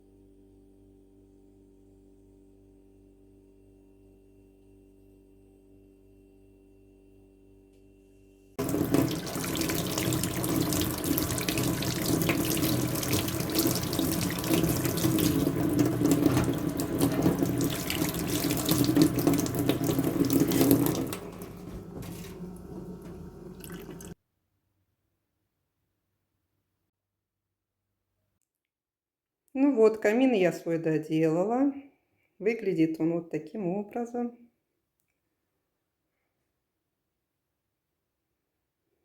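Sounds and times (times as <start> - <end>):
tap water running into sink: 8.6 - 24.2.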